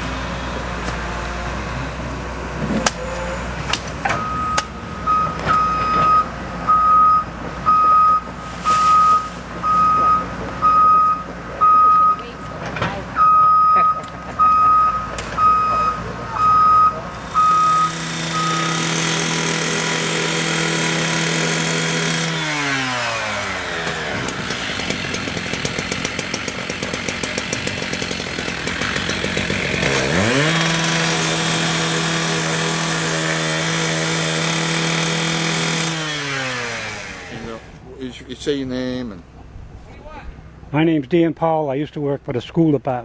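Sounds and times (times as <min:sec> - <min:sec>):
diesel engine running: 0:00.0 - 0:40.8
reversing alarm beeping: 0:04.1 - 0:12.5, 0:13.2 - 0:19.4.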